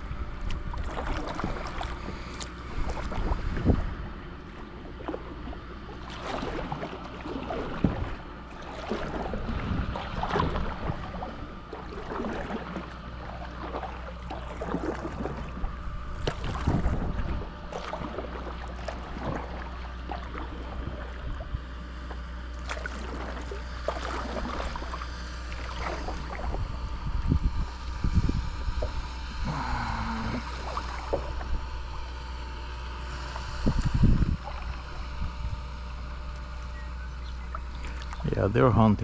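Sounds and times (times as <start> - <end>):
steady low rumble: 0.0 - 39.0
water lapping: 0.0 - 39.0
small water splashes: 0.3 - 36.7, 37.4 - 38.4.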